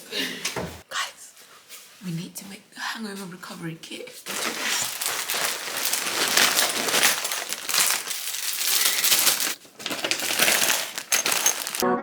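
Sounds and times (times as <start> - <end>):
packaging rustling: 4.2 - 11.8
small items clinking: 4.2 - 11.8.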